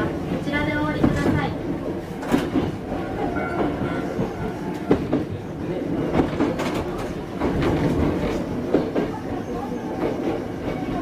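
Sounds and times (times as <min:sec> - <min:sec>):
electric train rumble: 0:00.0 - 0:11.0
wheels clacking over rail joints: 0:00.2 - 0:11.0.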